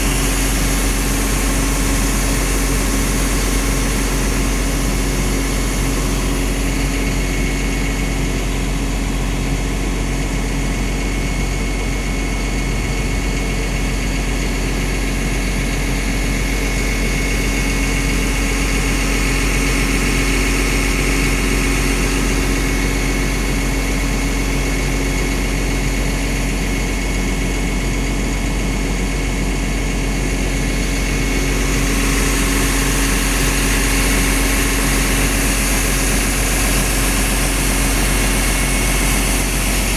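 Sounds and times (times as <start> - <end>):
high steady whine: 0.0 - 8.6, 30.1 - 39.9
excavator diesel engine running: 0.0 - 39.9.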